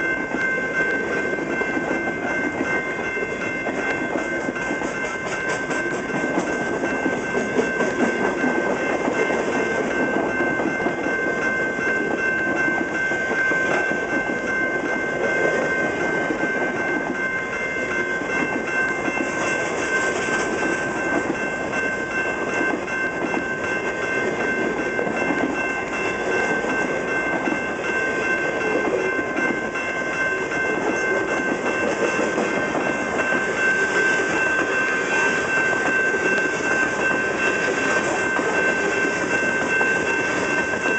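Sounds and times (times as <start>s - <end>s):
freight train cars rumbling past: 0.0s - 40.9s.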